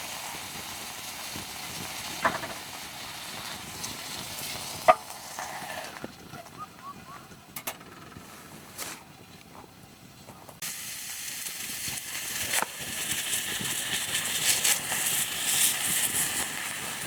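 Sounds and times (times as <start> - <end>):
food sizzling on grill: 0.0 - 6.0, 10.6 - 17.0.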